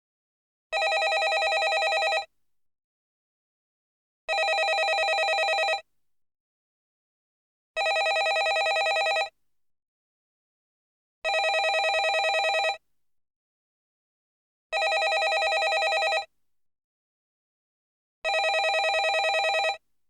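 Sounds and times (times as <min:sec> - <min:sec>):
landline telephone ringing: 0:00.8 - 0:02.3, 0:04.3 - 0:05.8, 0:07.8 - 0:09.3, 0:11.3 - 0:12.8, 0:14.8 - 0:16.3, 0:18.3 - 0:19.8.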